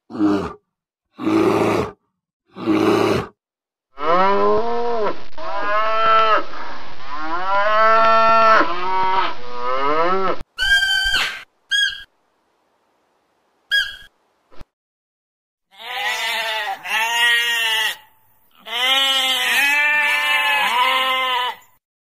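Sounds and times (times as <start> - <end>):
short high-pitched animal calls: 10.6 - 12.1, 13.7 - 14.1.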